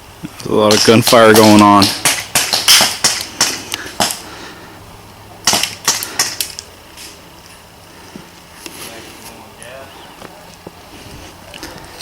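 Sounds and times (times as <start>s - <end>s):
airsoft guns firing: 0.7s - 4.2s, 5.4s - 6.6s.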